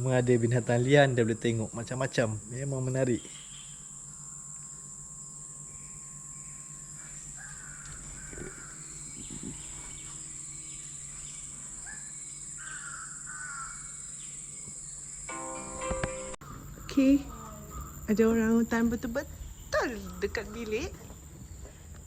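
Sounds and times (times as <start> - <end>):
high-pitched insect drone: 0.0 - 21.6
bird crow-like calls: 6.5 - 10.8, 11.7 - 14.3, 16.4 - 18.1.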